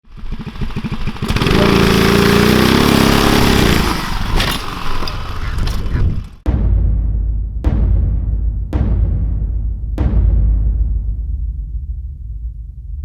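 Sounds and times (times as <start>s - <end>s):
small engine revving: 0.0s - 6.4s.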